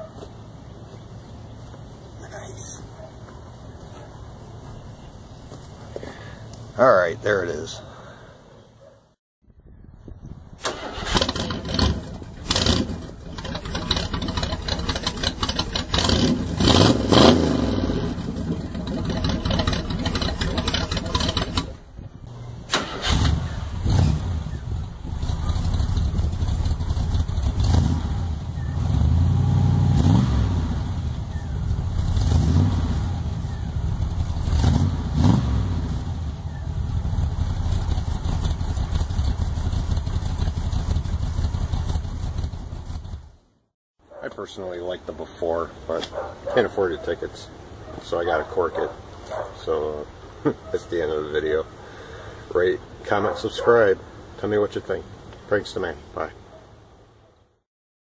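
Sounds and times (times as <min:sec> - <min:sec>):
muffled small engine revving: 0:10.7 - 0:43.4.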